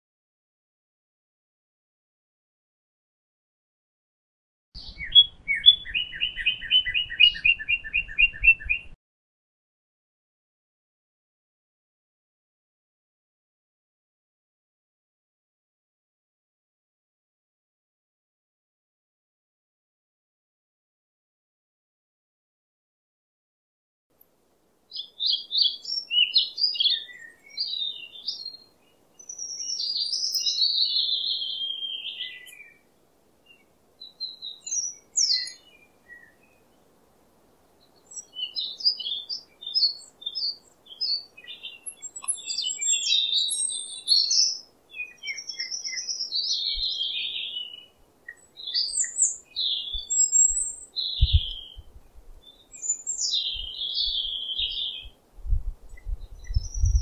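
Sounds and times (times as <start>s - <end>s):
small birds chirping: 4.8s - 9.0s, 24.9s - 37.0s, 37.7s - 55.2s, 55.8s - 57.0s.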